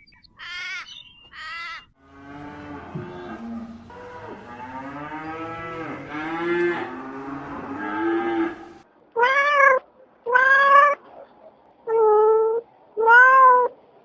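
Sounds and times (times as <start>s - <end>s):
cow mooing: 2.0s - 8.8s
cat meowing: 9.2s - 11.0s, 11.9s - 13.8s.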